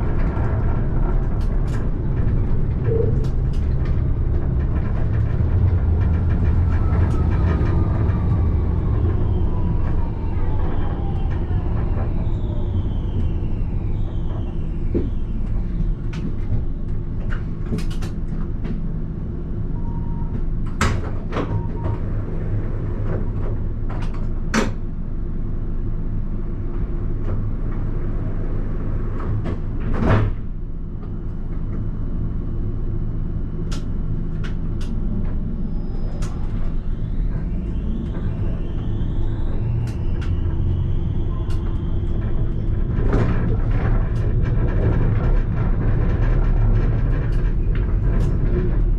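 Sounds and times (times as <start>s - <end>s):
tram wheels rumbling on rail: 0.0s - 48.9s.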